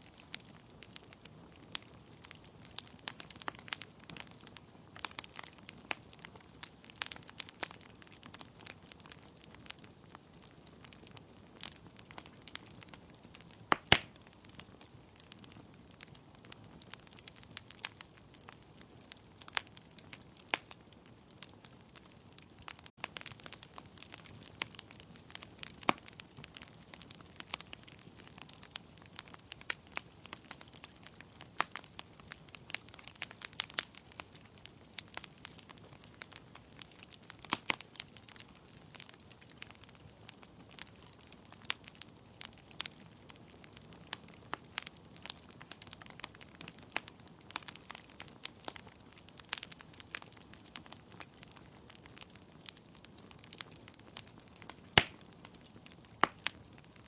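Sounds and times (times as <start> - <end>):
low steady hiss: 0.0 - 5.3
wood fire crackling: 0.0 - 57.0
logs popping and snapping: 54.6 - 55.3.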